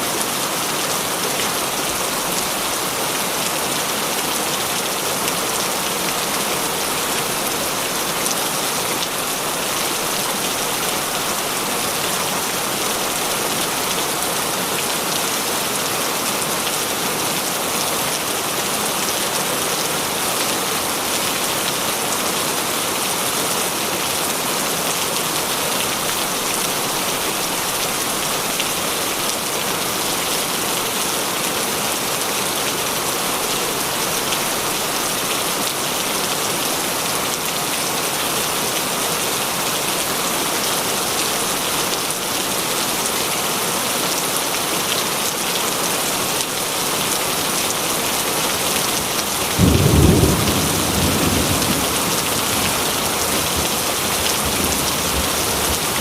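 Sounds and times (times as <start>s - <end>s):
heavy rain falling: 0.0s - 56.0s
thunder clap rumbling: 49.6s - 56.0s.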